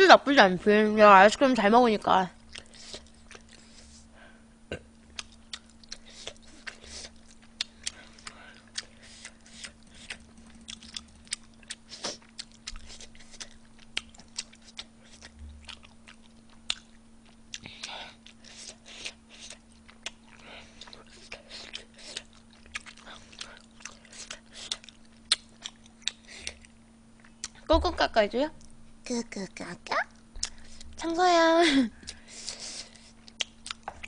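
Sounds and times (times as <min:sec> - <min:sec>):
faint steady hum: 0:00.0 - 0:34.0
person chewing food: 0:02.4 - 0:04.1, 0:05.0 - 0:27.7, 0:30.2 - 0:31.0, 0:32.0 - 0:34.0.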